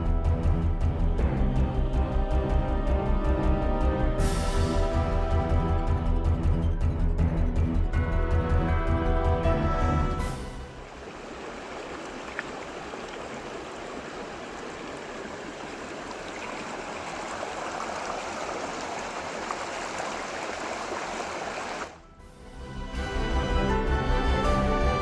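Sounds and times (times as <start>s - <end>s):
small stream running: 10.2s - 22.0s.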